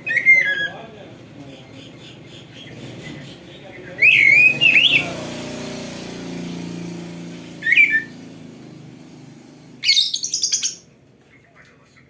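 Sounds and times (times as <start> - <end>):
bird singing whistled phrases: 0.0 - 0.8, 4.0 - 5.1, 7.6 - 8.1, 9.8 - 10.8.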